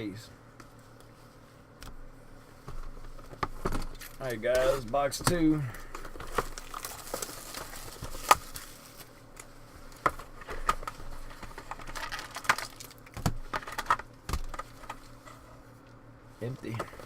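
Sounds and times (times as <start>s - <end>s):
wrapper and cardboard rustling: 5.9s - 9.2s, 9.9s - 15.2s.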